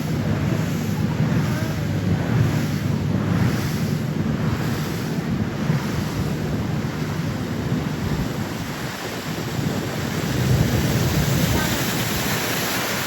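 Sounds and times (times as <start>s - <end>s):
low rumble: 0.0s - 8.7s
water rushing: 0.0s - 13.0s
wind buffeting microphone: 0.0s - 13.0s.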